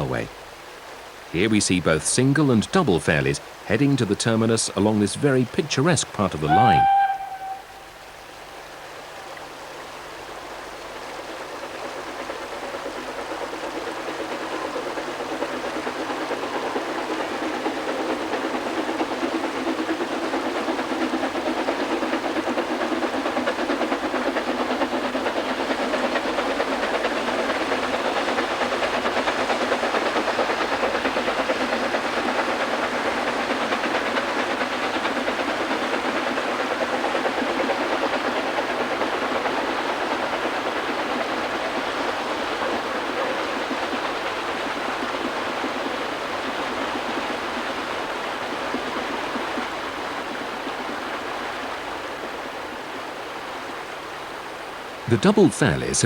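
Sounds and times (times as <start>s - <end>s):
steam hiss: 0.0s - 9.1s, 10.1s - 52.7s
steam locomotive exhaust beats: 0.0s - 56.0s.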